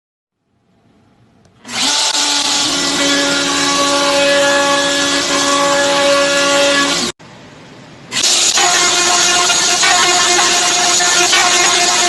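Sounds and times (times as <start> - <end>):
router spindle cutting wood: 1.6 - 7.2, 8.2 - 12.0.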